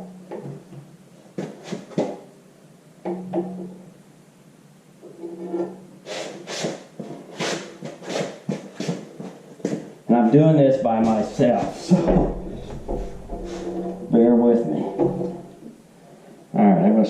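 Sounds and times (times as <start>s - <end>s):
metal clunks and knocks: 3.0s - 3.8s, 10.8s - 15.8s
short creaks: 11.0s - 15.8s.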